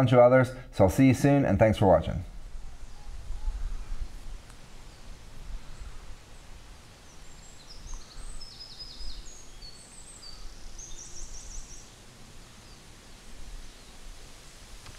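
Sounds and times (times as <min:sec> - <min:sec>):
small birds singing: 0:02.4 - 0:14.3.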